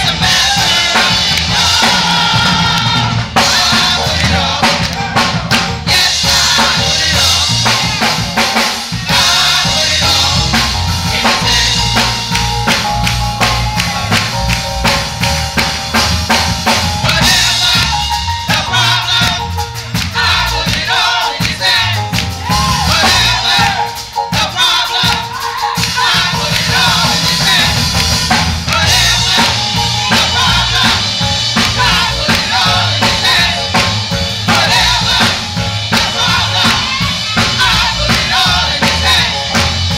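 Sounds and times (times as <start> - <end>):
bass: 0.0 - 39.9
drum kit beat: 0.0 - 39.9
voices singing: 0.0 - 39.9.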